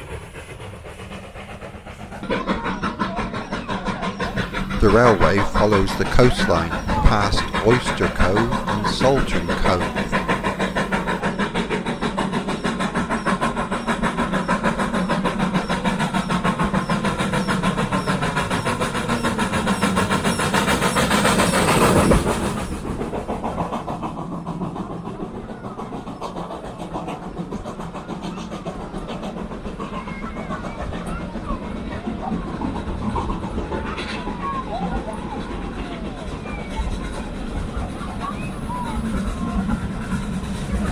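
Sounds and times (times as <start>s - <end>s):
steam train passing: 0.0s - 34.4s, 35.0s - 40.9s.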